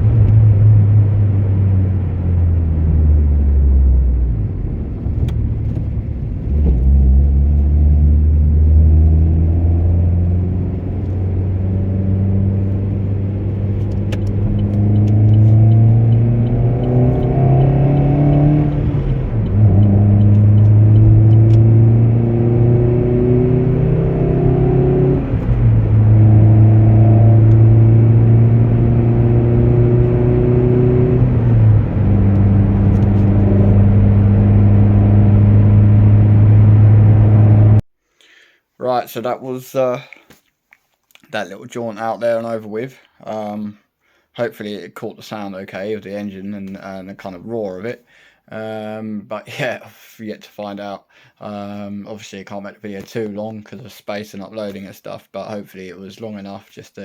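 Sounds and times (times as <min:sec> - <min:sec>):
car engine accelerating: 0:00.0 - 0:37.8.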